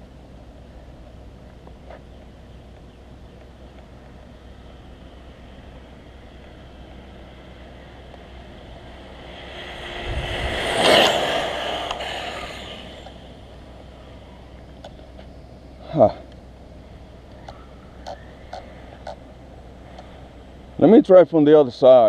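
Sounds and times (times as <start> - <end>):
toy truck speeding past: 8.2 - 13.5.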